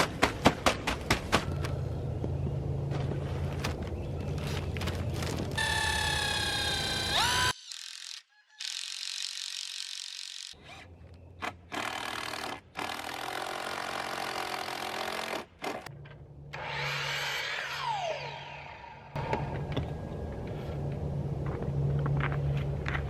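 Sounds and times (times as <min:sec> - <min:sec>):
power tool cutting wood: 0:05.6 - 0:10.6.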